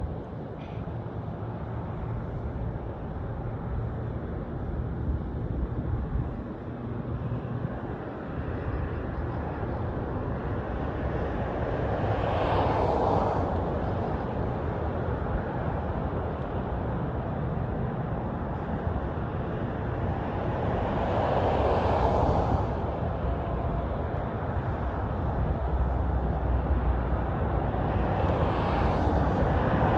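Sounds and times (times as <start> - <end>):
airliner engine rumble: 0.0 - 29.9.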